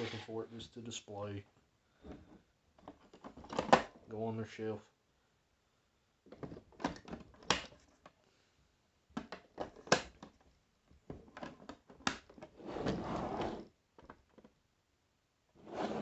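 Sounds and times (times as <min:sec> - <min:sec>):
rustling scrape: 0:00.0 - 0:00.5, 0:15.6 - 0:16.0
plastic clicks and knocks: 0:09.1 - 0:12.4.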